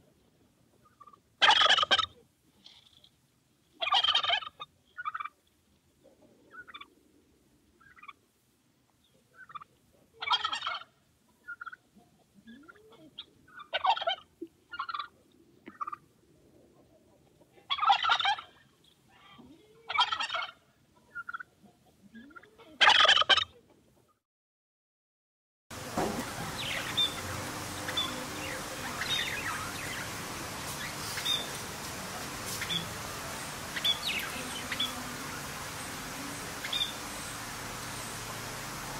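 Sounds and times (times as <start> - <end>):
turkey gobbling: 0.8 - 2.2, 3.8 - 5.4, 6.0 - 7.0, 7.8 - 8.2, 9.0 - 23.8, 26.2 - 38.9
short quiet turkey calls: 9.0 - 16.0, 27.8 - 31.6, 32.4 - 33.0.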